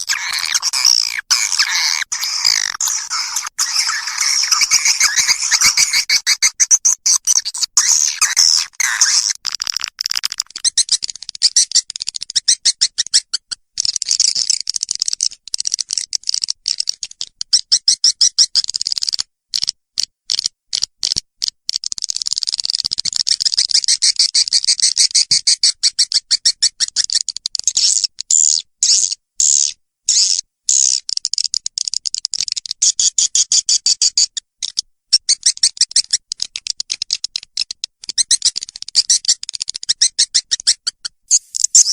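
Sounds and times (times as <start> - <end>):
high-pitched twittering bird chirps: 0.0 - 9.4, 41.3 - 41.9.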